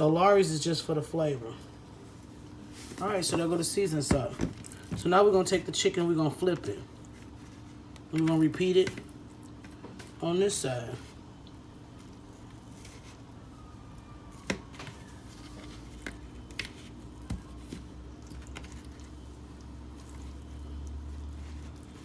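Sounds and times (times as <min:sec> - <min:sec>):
wet handling of raw chicken: 0:06.4 - 0:22.0.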